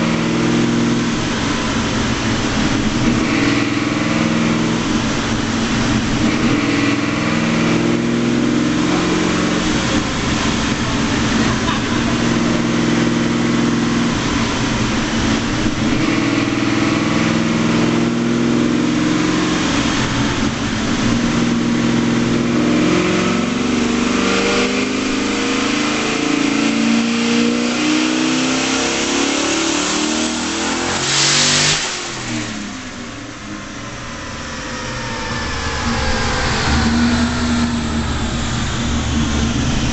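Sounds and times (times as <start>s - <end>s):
car engine revving on dyno: 0.0s - 39.9s
falling turbo whines: 0.0s - 39.9s
loud rush of air: 0.8s - 7.8s, 31.0s - 39.9s.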